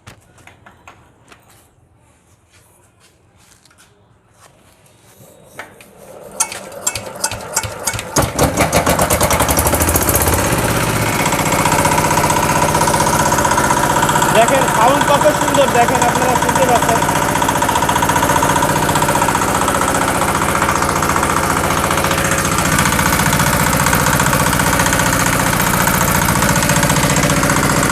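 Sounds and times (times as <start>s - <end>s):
diesel engine cranking and chugging: 6.0s - 27.9s.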